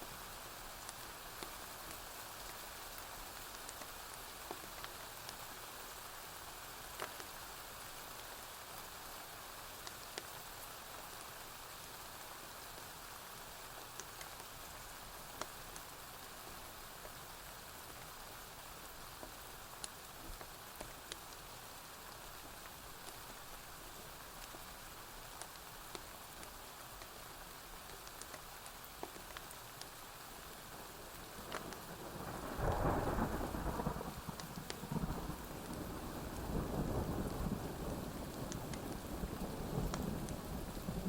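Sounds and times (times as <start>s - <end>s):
rain on a roof: 0.0s - 41.0s
wood fire crackling: 19.2s - 21.5s, 22.1s - 32.5s.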